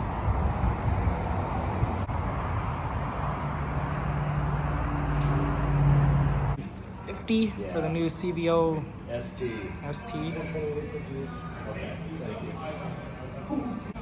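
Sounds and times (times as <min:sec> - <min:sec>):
vehicle engine running: 0:00.0 - 0:06.6
traffic rumble: 0:00.0 - 0:09.1.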